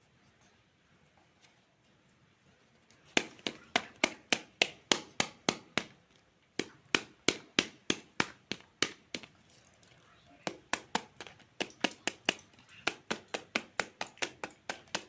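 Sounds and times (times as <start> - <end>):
knife chopping on cutting board: 3.2 - 5.9, 10.5 - 15.0.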